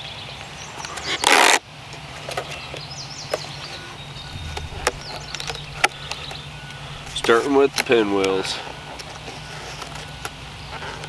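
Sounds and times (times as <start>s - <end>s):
low engine drone: 4.0s - 8.7s.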